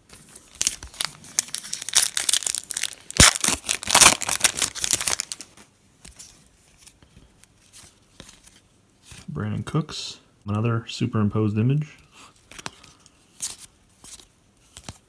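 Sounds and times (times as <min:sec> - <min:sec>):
cards rustling in hands: 0:00.0 - 0:09.6, 0:12.2 - 0:15.0
foil pack tearing and crinkling: 0:00.4 - 0:05.6.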